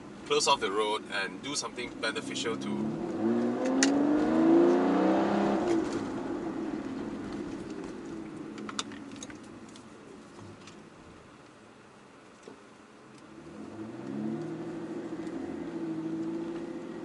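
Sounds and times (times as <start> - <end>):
car engine revving: 1.5 - 9.7, 13.2 - 17.0.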